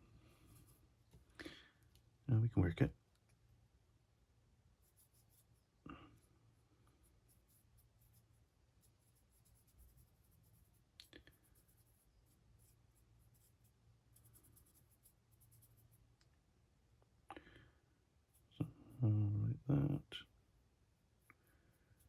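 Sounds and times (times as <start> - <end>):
paintbrush scratching on plastic: 4.8 - 6.3, 6.9 - 16.1, 18.2 - 19.0, 20.0 - 22.0.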